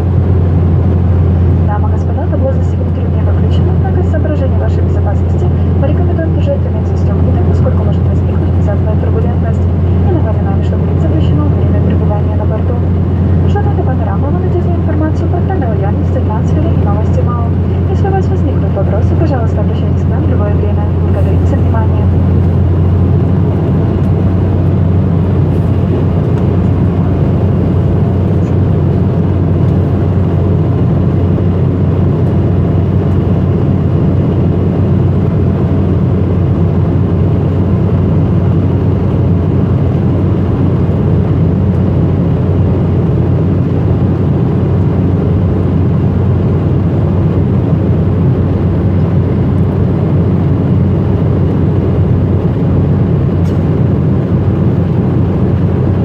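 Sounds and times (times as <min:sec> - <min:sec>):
jet engines droning: 0:00.0 - 0:56.0
strong low hum: 0:00.0 - 0:56.0
rushing airflow: 0:20.8 - 0:35.8.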